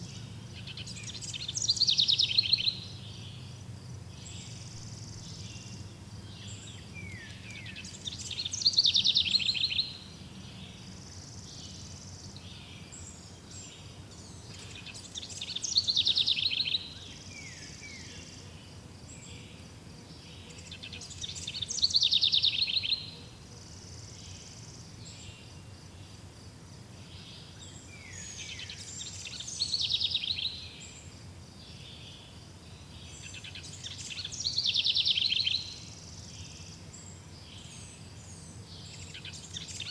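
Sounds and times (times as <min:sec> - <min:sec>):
songbird high-pitched trill: 0:00.0 - 0:03.5, 0:04.2 - 0:13.8, 0:14.6 - 0:18.2, 0:20.5 - 0:23.2, 0:27.3 - 0:31.1, 0:32.8 - 0:39.9
faint outdoor ambience: 0:00.0 - 0:39.9.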